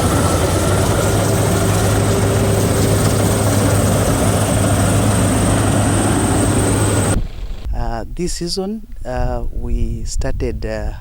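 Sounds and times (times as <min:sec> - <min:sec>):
combine harvester engine hum: 0:00.0 - 0:07.8
high whine: 0:00.0 - 0:07.9.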